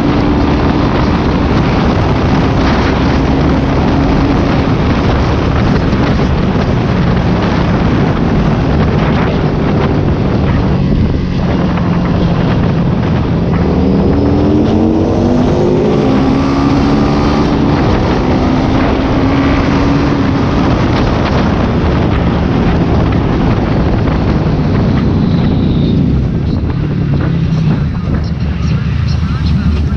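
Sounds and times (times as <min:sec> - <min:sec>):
motorcycle engine running: 0:00.0 - 0:29.9
wind on microphone: 0:00.0 - 0:29.9.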